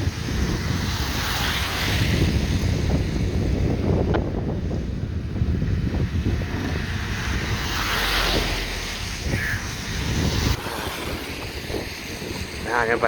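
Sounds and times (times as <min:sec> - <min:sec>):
road and vehicle noise: 0:00.0 - 0:13.0
wind buffeting microphone: 0:00.0 - 0:13.0.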